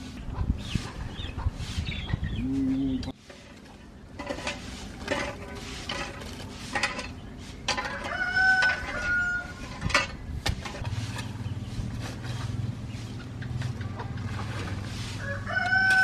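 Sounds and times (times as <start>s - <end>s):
chickens clucking: 0.2s - 16.0s
rooster crowing: 7.9s - 9.7s, 15.2s - 16.0s.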